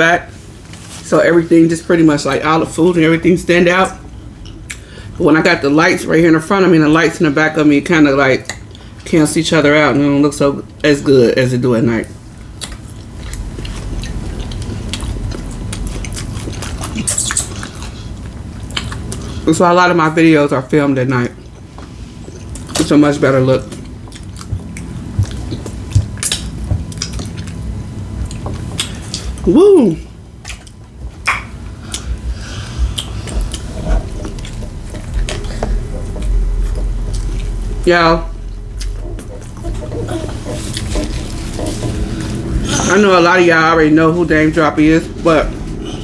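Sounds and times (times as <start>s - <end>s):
chewing and mouth sounds: 12.4s - 19.4s, 21.4s - 23.0s, 23.6s - 29.5s, 30.4s - 37.8s, 38.4s - 43.0s
soft squishing: 30.4s - 46.0s
low rumble: 31.6s - 46.0s.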